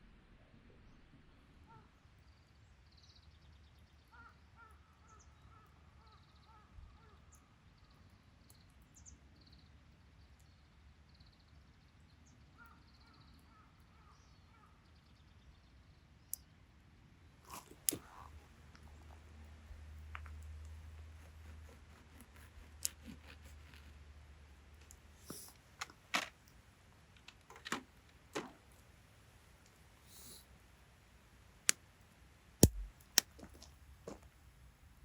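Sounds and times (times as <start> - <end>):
sharp clicks: 32.6 - 33.4.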